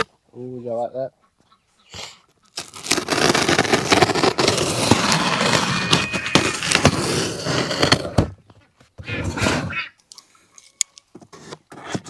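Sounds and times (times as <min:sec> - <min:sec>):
package being torn open: 0:02.5 - 0:05.0.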